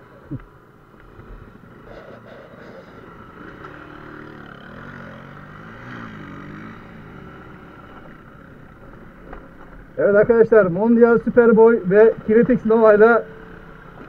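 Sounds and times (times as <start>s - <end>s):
small motorbike engine revving: 1.2s - 10.0s.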